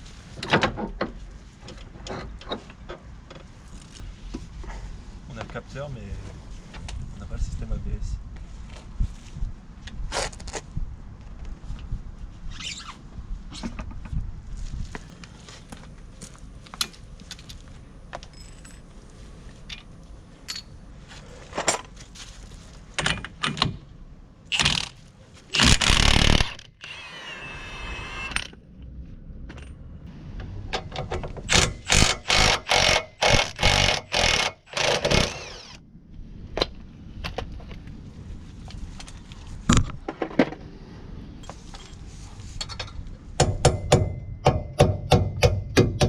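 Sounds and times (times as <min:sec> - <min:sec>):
tools clinking and knocking: 0:19.7 - 0:20.8.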